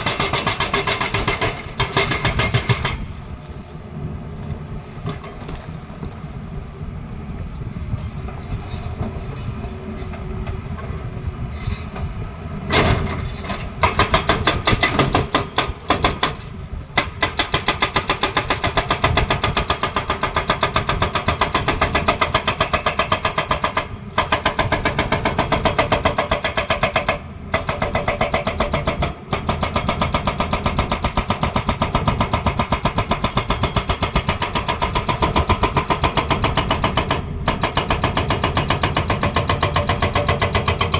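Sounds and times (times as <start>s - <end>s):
hydraulic breaker hammering: 0.0s - 3.2s, 12.7s - 40.9s
excavator diesel engine running: 0.0s - 40.9s.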